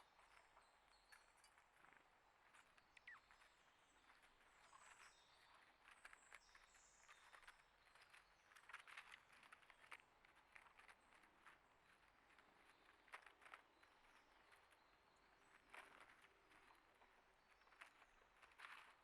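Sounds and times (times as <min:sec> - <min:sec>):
small birds chirping: 0:00.0 - 0:09.9.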